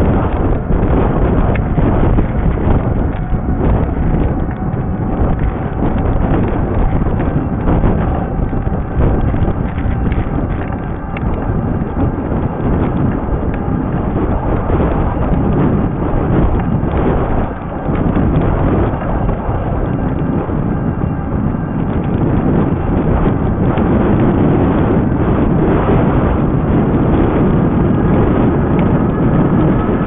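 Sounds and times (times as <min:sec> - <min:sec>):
bike rattling over rough trail: 0:00.0 - 0:30.0
wind buffeting microphone: 0:00.0 - 0:30.0.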